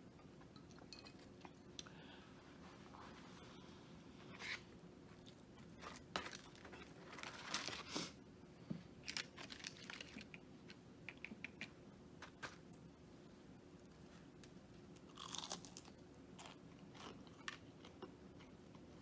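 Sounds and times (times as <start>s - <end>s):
paper wrapping crinkling: 5.8s - 8.0s, 9.0s - 10.3s
crunching bites and chewing: 15.0s - 18.6s.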